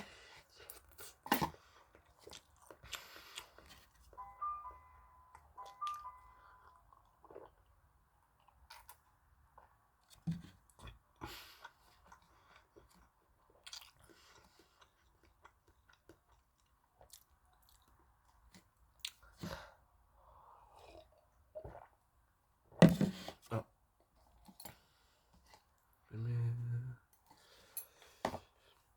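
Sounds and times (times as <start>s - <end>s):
close-miked chewing noodles: 0.1s - 4.0s, 10.7s - 18.1s.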